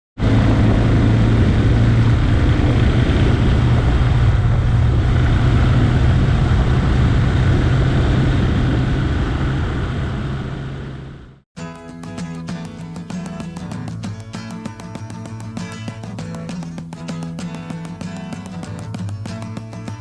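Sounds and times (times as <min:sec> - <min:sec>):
wind rush: 0:00.2 - 0:11.4
motorcycle engine running: 0:11.9 - 0:20.0.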